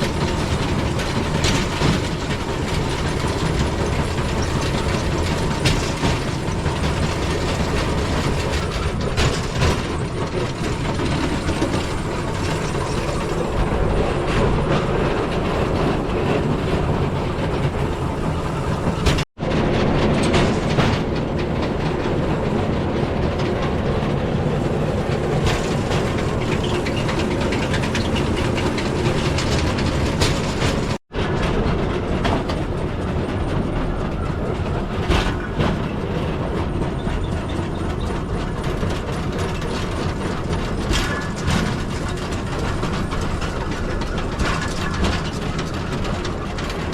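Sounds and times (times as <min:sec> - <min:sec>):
wheel clicks: 0:00.0 - 0:19.2, 0:20.2 - 0:31.0
steel wheels rolling on track: 0:00.0 - 0:46.9.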